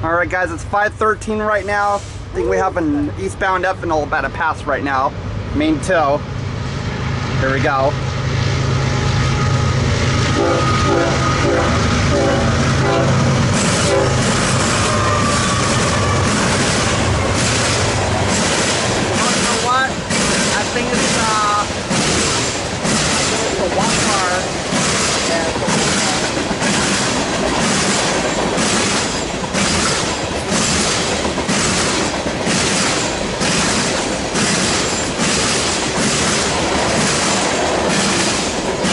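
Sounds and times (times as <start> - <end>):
diesel locomotives throbbing: 0.0 - 38.9
freight train cars rolling past: 0.0 - 38.9.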